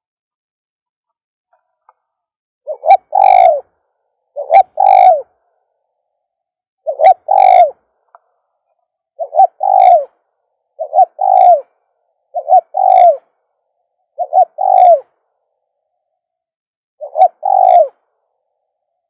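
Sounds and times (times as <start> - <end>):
dove cooing: 2.7 - 3.7, 4.3 - 5.4, 6.8 - 7.8, 9.2 - 10.2, 10.8 - 13.4, 14.1 - 15.2, 17.0 - 18.2.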